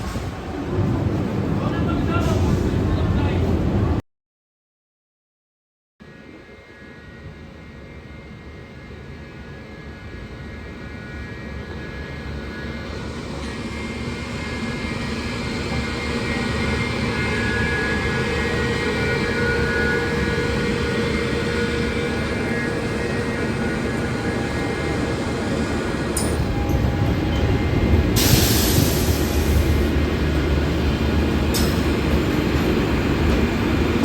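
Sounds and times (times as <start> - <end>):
train locomotive drone: 0.0 - 4.0, 6.0 - 34.0.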